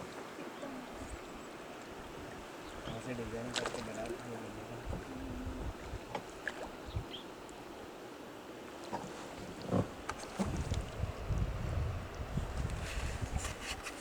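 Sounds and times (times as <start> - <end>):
short splashes: 2.8 - 4.3.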